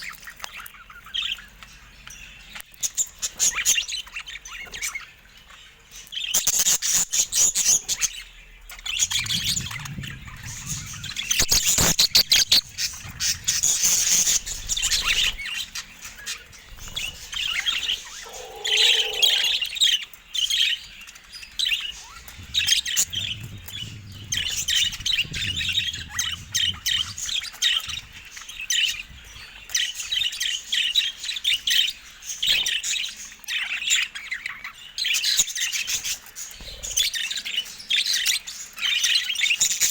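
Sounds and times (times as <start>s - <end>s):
budgerigars chirping: 0.1s - 35.2s
short lower bird call: 18.2s - 19.7s.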